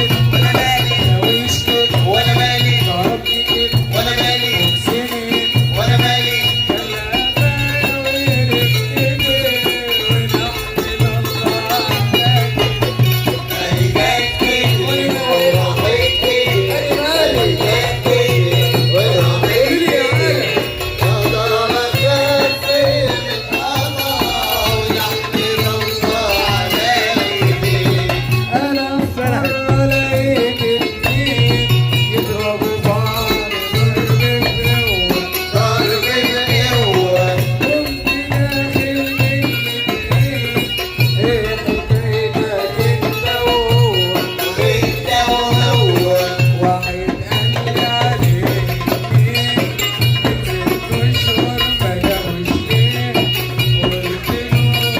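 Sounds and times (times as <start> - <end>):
rattling hand percussion: 0.0 - 54.9.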